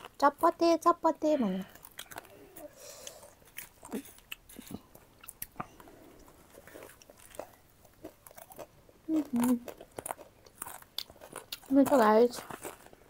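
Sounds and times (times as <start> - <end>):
chewing crunchy snack: 1.6 - 13.0.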